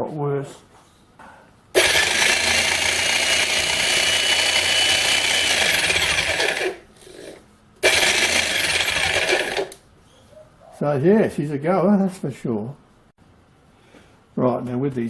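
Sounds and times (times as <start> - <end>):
electric jackhammer running: 1.8 - 9.8.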